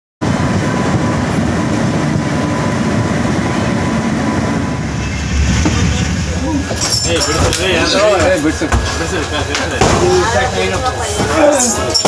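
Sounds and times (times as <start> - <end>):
train wheels rumbling on rail: 0.2 - 12.0.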